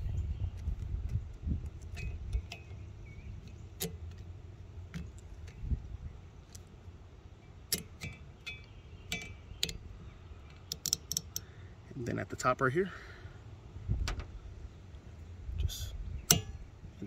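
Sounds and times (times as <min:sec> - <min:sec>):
low handling rumble: 0:00.0 - 0:10.7.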